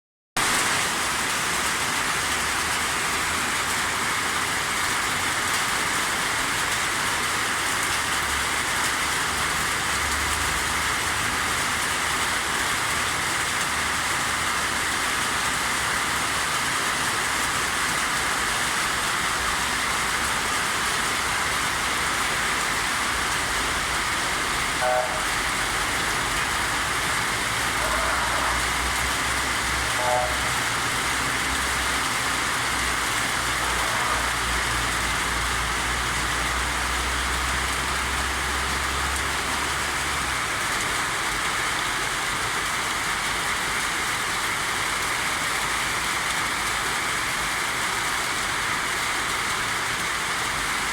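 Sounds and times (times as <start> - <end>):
steady rain hiss: 0.4 - 50.9
brief pitched sound: 29.9 - 30.7.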